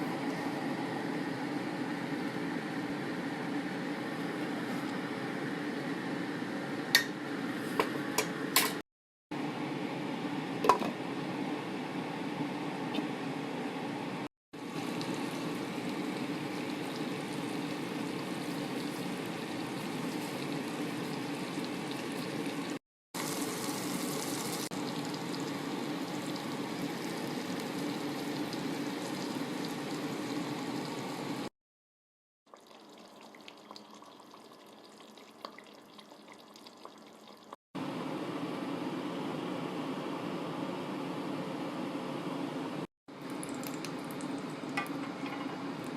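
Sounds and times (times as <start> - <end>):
liquid simmering in a pot: 14.6 - 31.5, 32.5 - 37.6.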